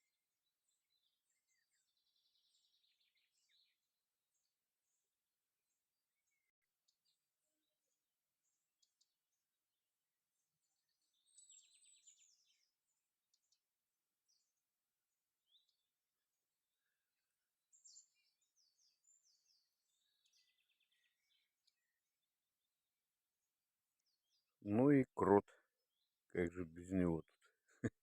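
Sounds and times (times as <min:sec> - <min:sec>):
songbird twittering: 0:10.7 - 0:12.7.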